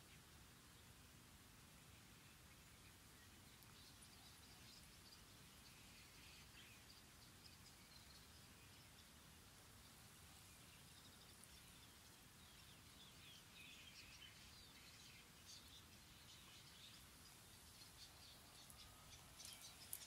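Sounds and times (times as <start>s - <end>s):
birds chirping and trilling: 1.9s - 20.0s.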